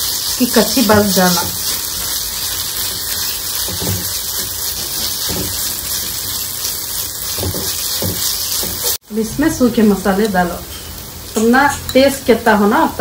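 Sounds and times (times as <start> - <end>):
wooden spoon scraping: 0.0 - 9.0
onions sizzling in oil: 0.0 - 13.0.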